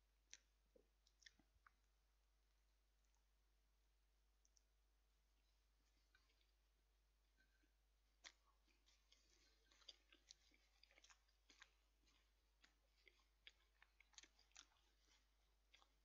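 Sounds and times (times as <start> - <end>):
person chewing: 0.2 - 1.9, 5.8 - 6.6, 7.4 - 16.0.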